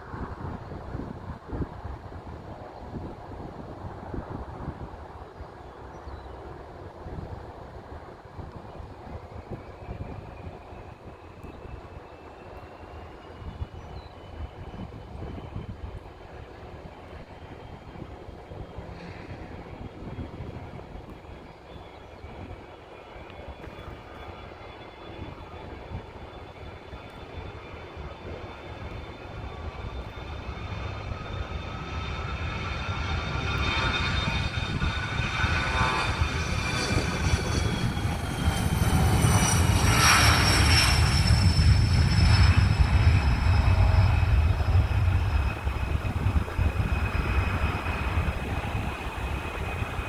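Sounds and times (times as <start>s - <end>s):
jet engine whine: 0.0s - 50.0s
jet engines rumbling: 14.3s - 50.0s.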